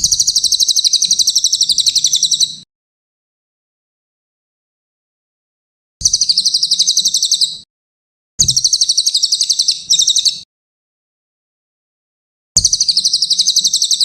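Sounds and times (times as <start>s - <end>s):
shrill fast repeated chirps: 0.0s - 2.7s, 6.0s - 7.7s, 8.4s - 10.5s, 12.6s - 14.0s.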